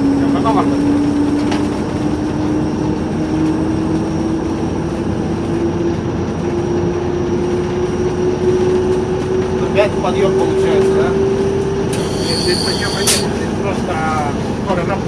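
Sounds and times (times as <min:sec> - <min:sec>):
diesel locomotive running: 0:00.0 - 0:15.0
faint high whistle: 0:11.9 - 0:13.4.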